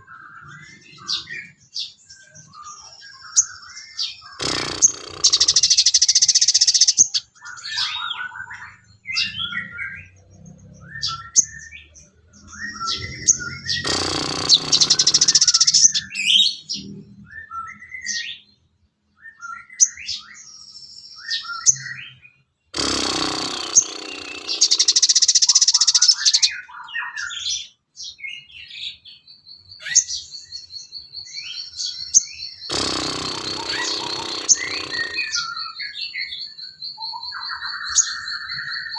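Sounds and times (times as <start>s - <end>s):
songbird chirping and twittering: 0.0s - 38.9s
rapid bird trill: 0.3s - 16.8s, 21.3s - 27.4s, 29.6s - 38.9s
harsh rasping bird call: 4.3s - 7.2s, 12.7s - 16.7s, 22.8s - 26.6s, 32.6s - 36.1s.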